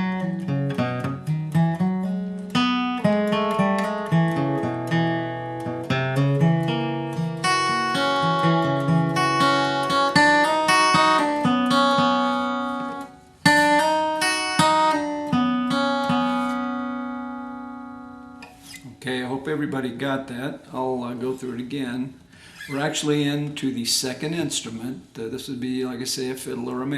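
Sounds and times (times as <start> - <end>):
acoustic guitar picking: 0.0 - 19.1.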